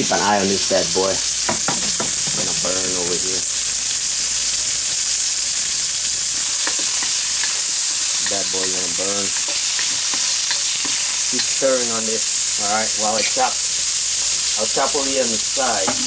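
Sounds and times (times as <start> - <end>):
bacon sizzling in a wok: 0.0 - 16.0
fat spattering crackles: 0.4 - 16.0
spatula stirring: 6.4 - 13.6.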